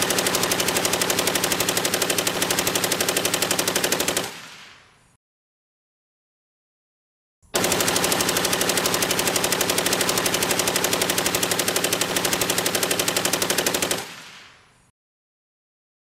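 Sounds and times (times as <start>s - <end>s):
machine gun burst: 0.0s - 4.7s, 7.6s - 14.6s.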